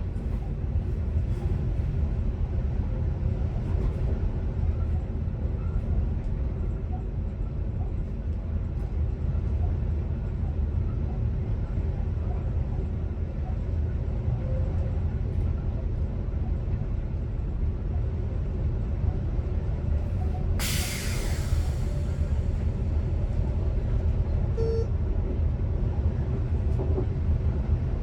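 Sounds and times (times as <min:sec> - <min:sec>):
train low rumble: 0:00.0 - 0:28.0
air brake hiss: 0:20.6 - 0:22.9.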